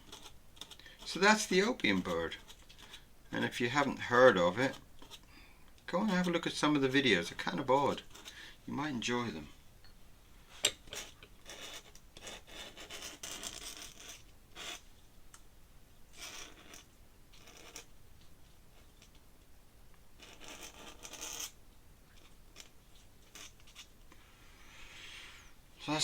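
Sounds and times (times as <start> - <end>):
pen nib scratching on paper: 0.0 - 3.0, 11.0 - 14.8, 16.2 - 17.9, 20.2 - 23.9.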